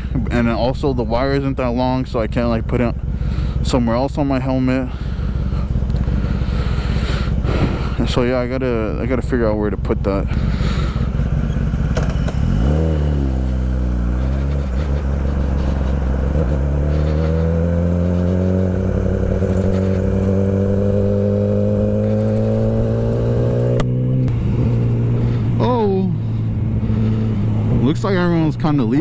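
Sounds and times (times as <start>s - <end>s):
motorcycle engine accelerating: 0.0s - 29.0s
wind rush: 7.4s - 8.3s.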